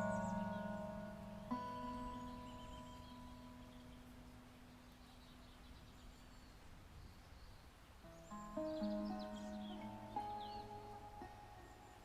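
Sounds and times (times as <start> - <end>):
fingerpicked acoustic guitar: 0.0 - 4.6, 8.1 - 12.0
faint bird chirps: 0.0 - 12.0.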